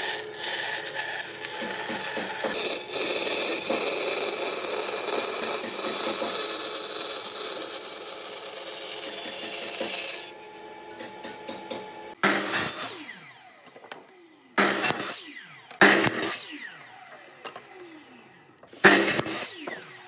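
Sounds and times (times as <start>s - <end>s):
tool rasping wood: 0.0s - 13.0s, 18.7s - 19.9s.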